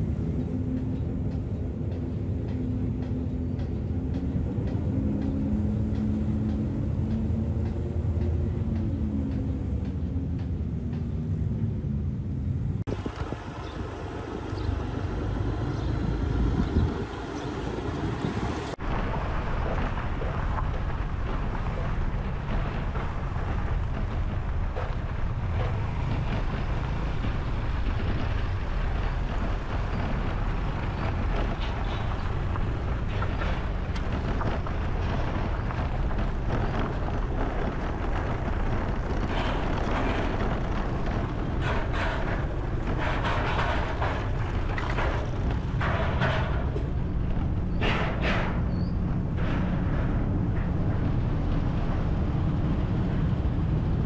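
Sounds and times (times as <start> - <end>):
vehicles rumbling: 0.0 - 54.0
wind noise on microphone: 12.6 - 54.0
light knocks and rattles: 19.6 - 52.8.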